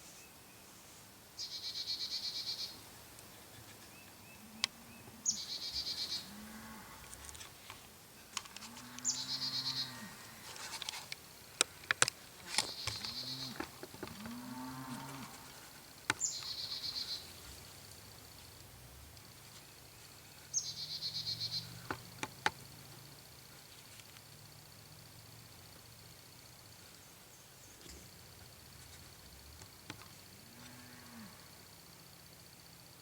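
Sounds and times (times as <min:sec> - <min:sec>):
low rise-and-fall bird calls: 0:01.4 - 0:07.2, 0:08.8 - 0:10.6, 0:12.4 - 0:17.5, 0:19.4 - 0:22.2
songbird high trill: 0:03.9 - 0:06.3, 0:16.2 - 0:17.3, 0:20.5 - 0:21.8.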